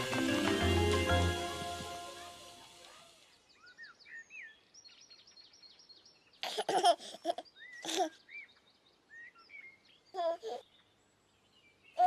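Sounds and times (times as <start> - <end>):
birds chirping: 0.0 - 12.0
person giggling: 6.4 - 8.2.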